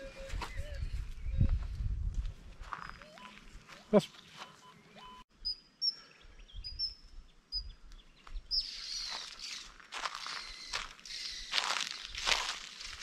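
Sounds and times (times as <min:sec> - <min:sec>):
small birds chirping: 0:02.8 - 0:13.0
rustling crunching noise: 0:09.1 - 0:13.0.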